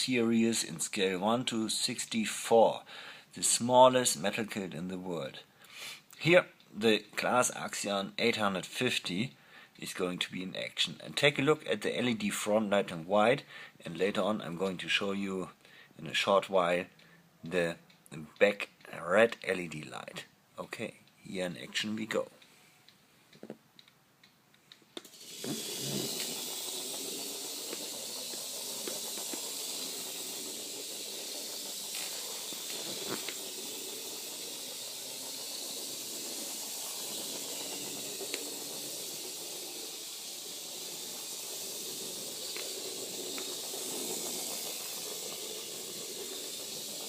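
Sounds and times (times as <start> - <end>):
toy motor whirring: 0.0 - 2.5, 25.0 - 47.0.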